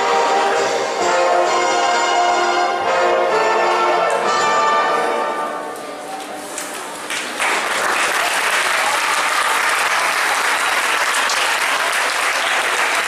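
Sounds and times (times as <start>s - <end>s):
song music: 0.0s - 6.0s
audience applauding: 7.0s - 13.0s.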